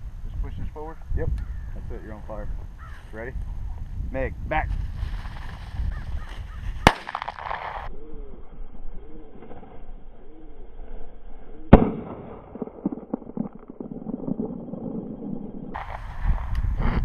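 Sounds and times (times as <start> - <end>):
shotgun shot: 6.8 - 7.9, 11.7 - 13.5.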